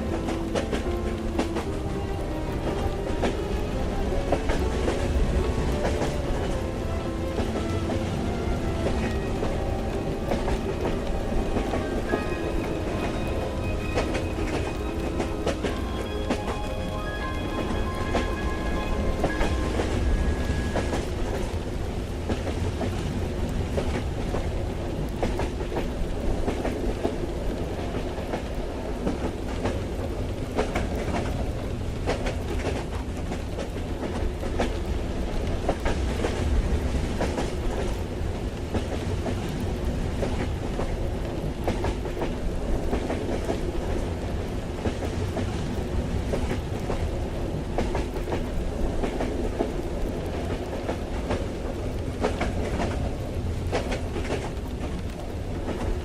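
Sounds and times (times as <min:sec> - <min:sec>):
train rumble: 0:00.0 - 0:56.0
song playing: 0:05.4 - 0:20.2.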